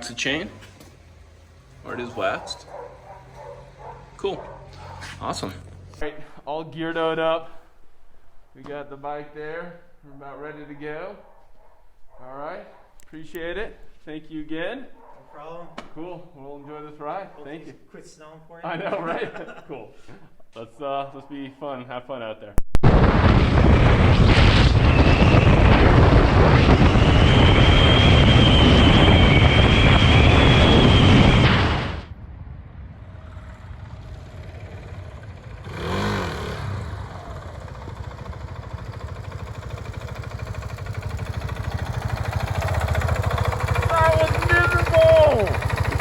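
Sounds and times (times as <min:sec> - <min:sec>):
motorcycle engine: 0:00.0 - 0:06.1, 0:24.8 - 0:46.0
wind rush over microphone: 0:22.9 - 0:34.0.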